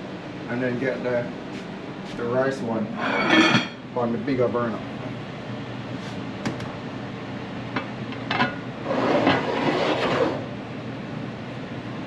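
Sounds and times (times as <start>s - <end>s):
pot scraping across a stovetop: 3.0s - 3.6s, 8.4s - 10.5s.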